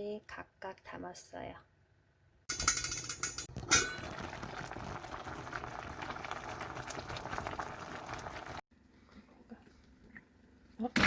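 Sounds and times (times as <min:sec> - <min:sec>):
pot boiling hard: 0:02.5 - 0:08.6.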